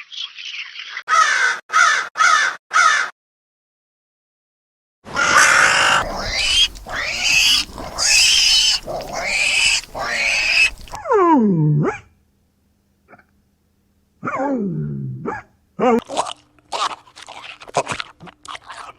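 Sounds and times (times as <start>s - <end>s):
pig squealing: 5.1s - 11.0s.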